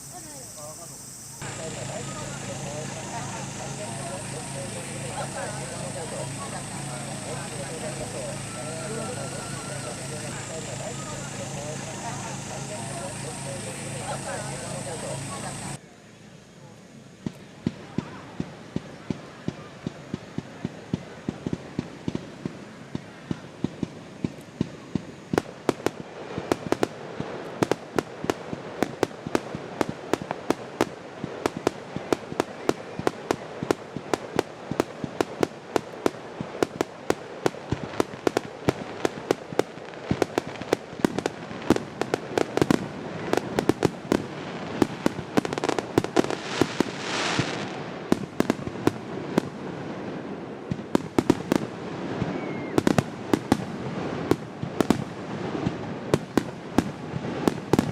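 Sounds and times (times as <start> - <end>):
hissing rush: 0.0 - 15.8, 21.1 - 57.9
fireworks bangs and cracks: 1.4 - 15.8, 17.2 - 57.9.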